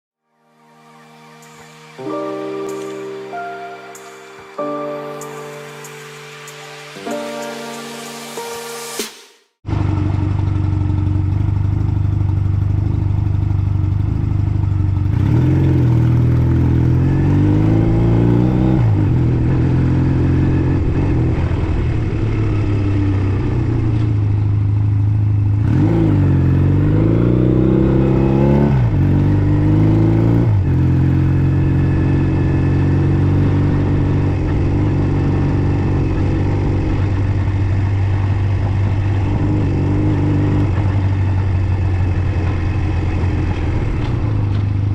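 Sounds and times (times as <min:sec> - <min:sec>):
motorcycle engine revving: 0:09.6 - 0:44.9.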